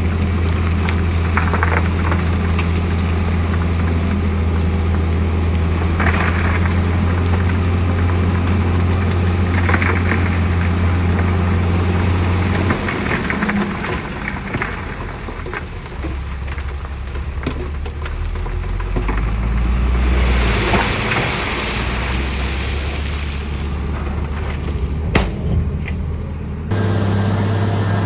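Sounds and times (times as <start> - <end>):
heavy diesel engine running: 26.7 - 28.0.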